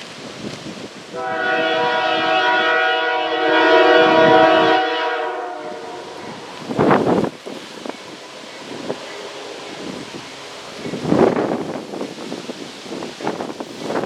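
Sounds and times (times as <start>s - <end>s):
wind buffeting microphone: 0.0s - 14.0s
locomotive air horn chord: 1.1s - 6.6s.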